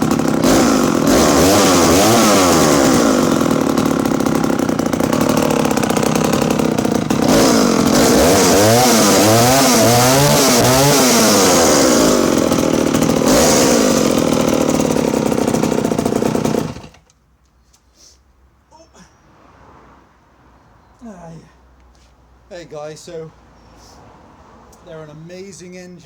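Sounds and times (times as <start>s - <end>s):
chainsaw engine revving: 0.0s - 17.1s.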